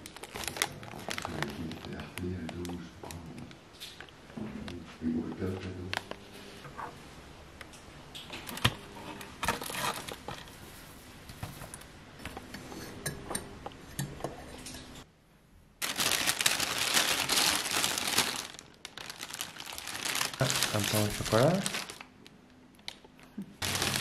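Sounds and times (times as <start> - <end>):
paper bag crinkling: 0.0 - 2.2, 15.8 - 22.1, 23.6 - 24.0.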